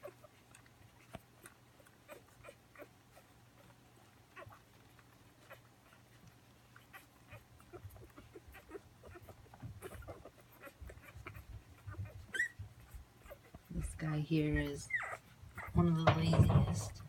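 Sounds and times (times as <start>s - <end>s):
low steady hum: 0.0s - 17.0s
puppies squeaking: 0.0s - 17.0s.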